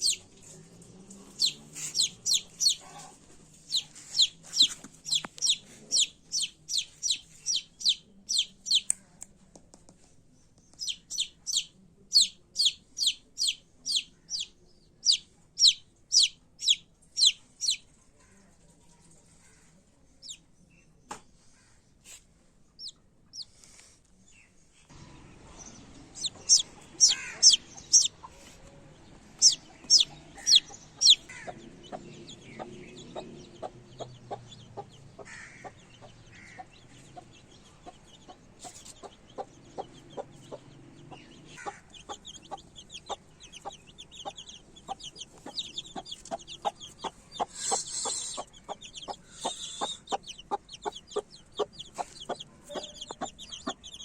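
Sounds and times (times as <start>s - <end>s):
chicken clucking: 0.0s - 9.0s, 10.8s - 19.4s, 22.8s - 23.5s, 25.0s - 54.0s
chicks peeping: 0.0s - 9.0s, 10.7s - 18.0s, 22.0s - 23.8s, 24.9s - 54.0s.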